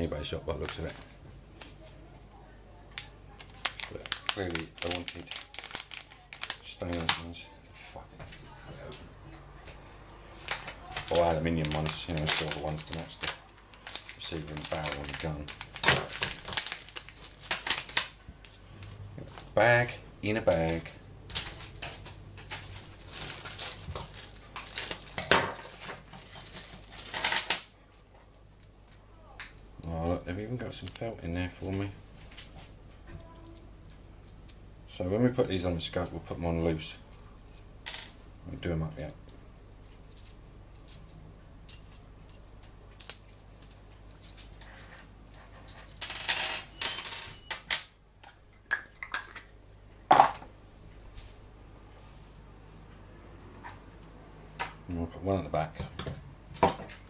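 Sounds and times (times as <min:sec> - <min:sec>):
plastic bag handled: 0:03.4 - 0:07.2, 0:10.4 - 0:18.1, 0:20.5 - 0:27.2
metal rings clinking: 0:45.3 - 0:47.8.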